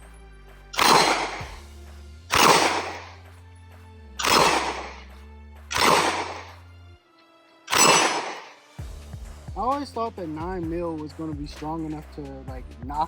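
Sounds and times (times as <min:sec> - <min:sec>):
background music: 0:00.0 - 0:13.0
pistol shots hitting steel: 0:00.8 - 0:01.6, 0:02.3 - 0:03.2, 0:04.2 - 0:05.1, 0:05.7 - 0:06.6, 0:07.7 - 0:08.7.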